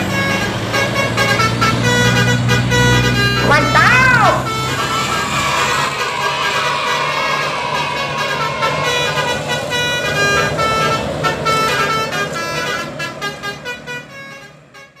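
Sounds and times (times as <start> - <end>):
multi-tone bus horn melody: 0.0 - 15.0
low hum: 4.4 - 11.2.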